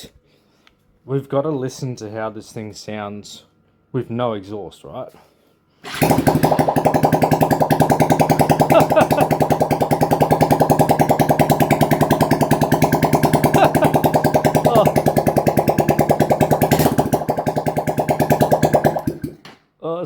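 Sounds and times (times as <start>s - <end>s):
motorcycle engine idling: 5.9s - 19.4s.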